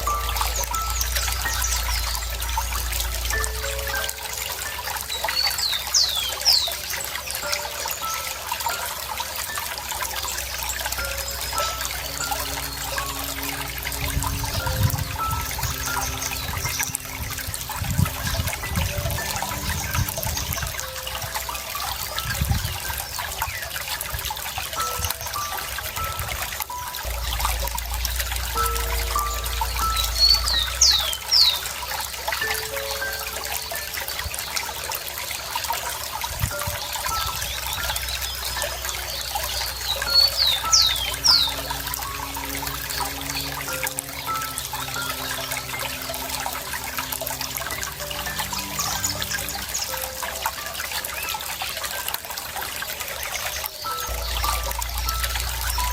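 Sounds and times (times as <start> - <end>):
low gurgling water: 0.0 - 55.9
water trickling and splashing: 0.0 - 55.9.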